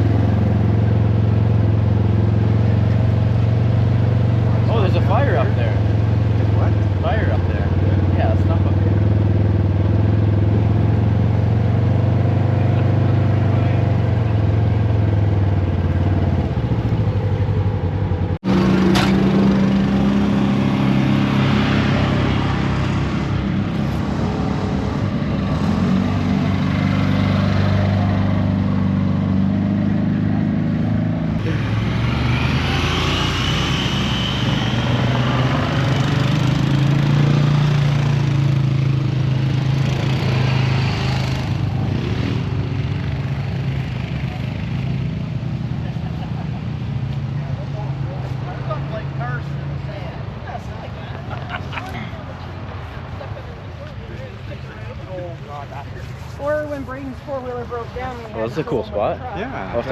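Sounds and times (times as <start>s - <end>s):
atv engine running: 0.0s - 33.8s.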